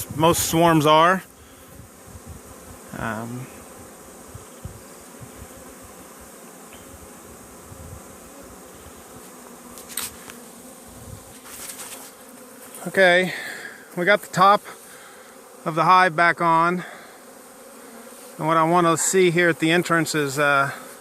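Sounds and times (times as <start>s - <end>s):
bees buzzing: 0.0s - 21.0s
knocks and scrapes: 11.3s - 12.2s.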